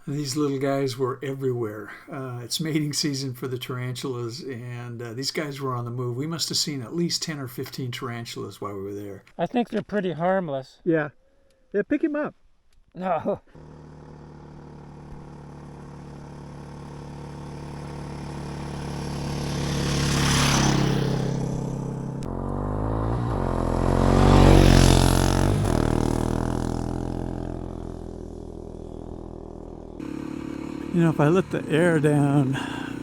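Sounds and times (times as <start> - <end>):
tyres on gravel road: 0.0 - 10.1, 12.3 - 33.0
dirt bikes passing by: 13.4 - 33.0.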